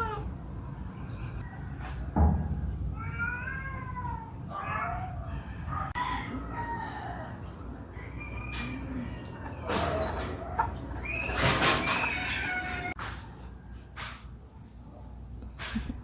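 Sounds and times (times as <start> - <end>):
cat meowing: 0.0 - 0.3, 2.9 - 5.8, 12.0 - 13.0.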